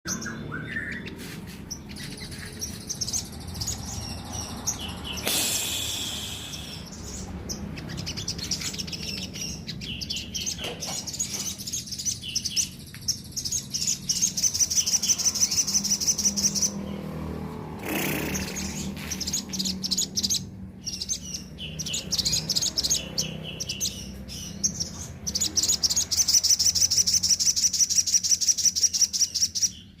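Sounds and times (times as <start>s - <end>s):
sunbird chirping: 0.1s - 17.2s.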